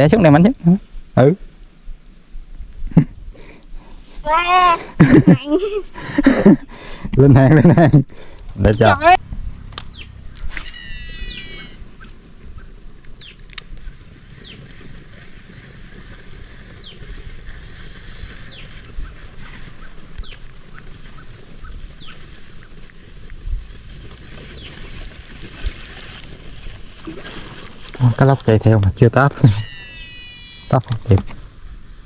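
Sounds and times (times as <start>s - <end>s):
small birds chirping: 6.5s - 15.0s, 16.6s - 32.0s
steady low rumble: 7.2s - 10.6s.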